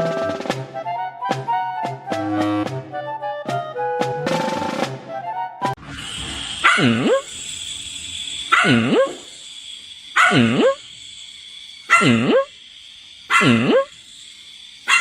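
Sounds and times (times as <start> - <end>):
dog barking: 6.6 - 7.2, 8.5 - 9.2, 10.2 - 10.8, 11.9 - 12.5, 13.3 - 13.9.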